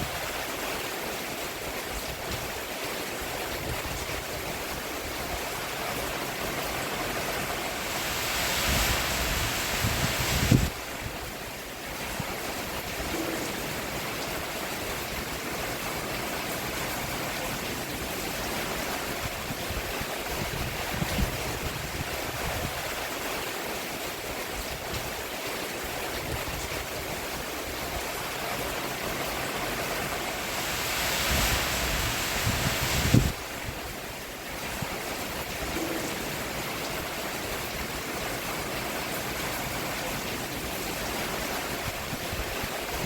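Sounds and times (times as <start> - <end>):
rain falling on a roof: 0.0 - 43.0
single louder raindrops: 29.6 - 33.7.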